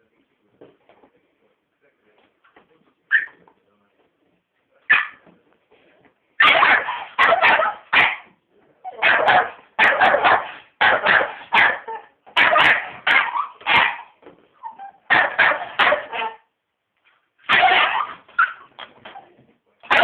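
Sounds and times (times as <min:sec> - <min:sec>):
dog barking: 0:04.9 - 0:05.2, 0:06.4 - 0:08.3, 0:08.9 - 0:14.2, 0:14.8 - 0:16.5, 0:17.5 - 0:18.6.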